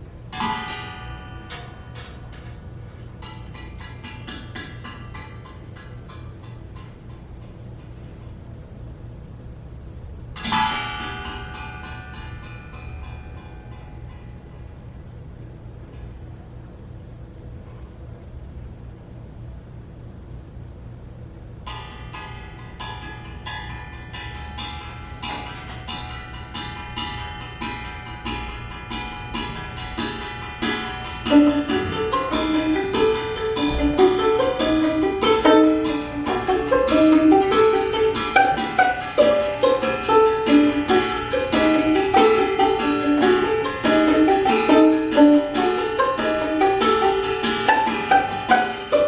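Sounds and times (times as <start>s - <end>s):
sustained high tones: 28.1s - 49.0s
melody of short stepping notes: 29.7s - 49.0s.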